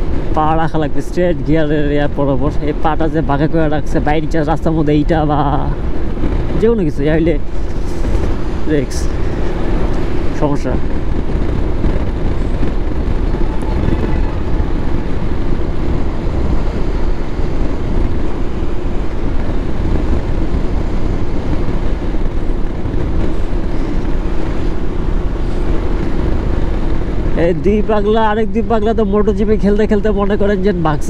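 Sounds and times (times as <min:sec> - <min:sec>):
motorcycle engine hum: 0:00.0 - 0:31.0
wind rushing over microphone: 0:00.0 - 0:31.0.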